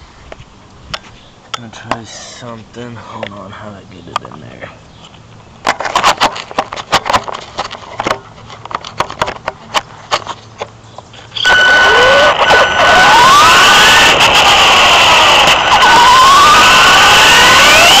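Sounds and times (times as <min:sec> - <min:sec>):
sharp clicks and knocks: 0:05.6 - 0:11.1
electric motor high whine: 0:11.4 - 0:18.0.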